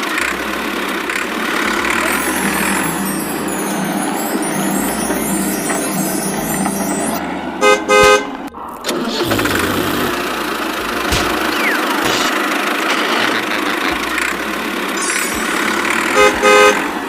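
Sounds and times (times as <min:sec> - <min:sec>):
vehicle noise: 0:00.0 - 0:03.8, 0:04.9 - 0:17.0
vehicle horn honking: 0:07.6 - 0:08.3, 0:16.1 - 0:16.9.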